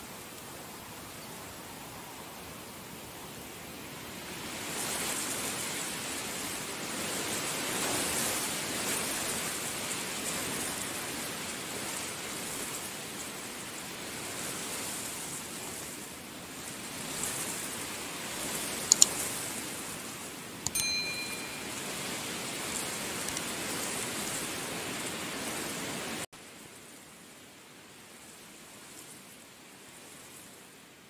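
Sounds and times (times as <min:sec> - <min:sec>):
heavy rain hissing: 0:21.7 - 0:29.0.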